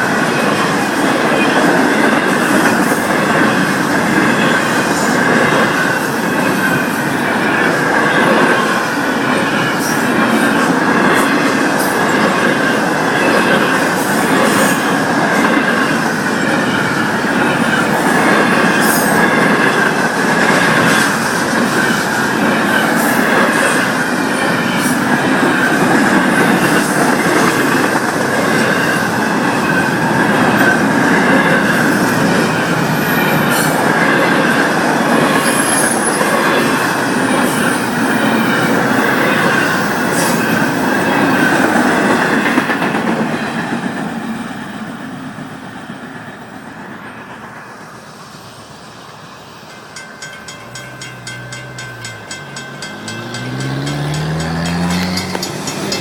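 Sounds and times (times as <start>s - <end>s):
freight train wheels on rail: 0.0s - 56.0s
high-pitched wheel squeal: 50.5s - 56.0s.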